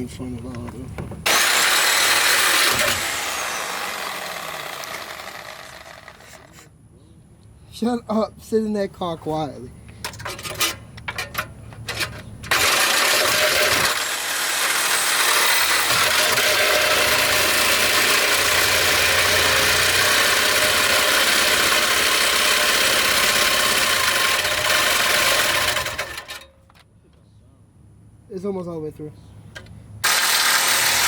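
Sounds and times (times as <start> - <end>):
power tool cutting steel pipe: 1.3 - 6.7, 12.5 - 26.4, 30.0 - 31.0.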